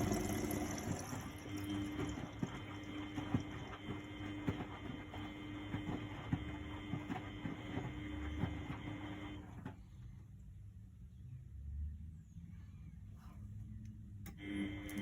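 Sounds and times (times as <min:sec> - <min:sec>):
washing machine water rushing in: 0:00.0 - 0:09.9.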